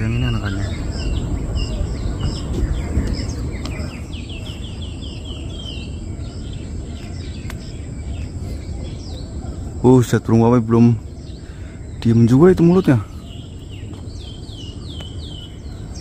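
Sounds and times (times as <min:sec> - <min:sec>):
low background rumble: 0:00.0 - 0:16.0
small songbirds chirping: 0:00.0 - 0:16.0.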